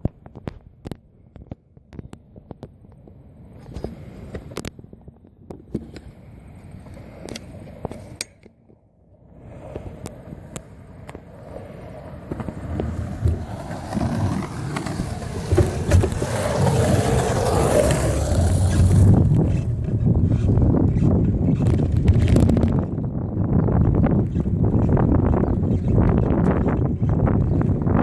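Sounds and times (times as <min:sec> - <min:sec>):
bicycle tyre rumble: 0:09.2 - 0:28.0
wind on microphone: 0:09.4 - 0:28.0
bike rattles and clicks: 0:12.2 - 0:28.0.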